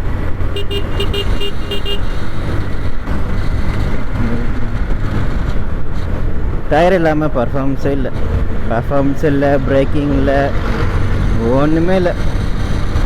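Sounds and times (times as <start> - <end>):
motorcycle rumbling in traffic: 0.0 - 13.0
short horn beeps: 0.6 - 2.2.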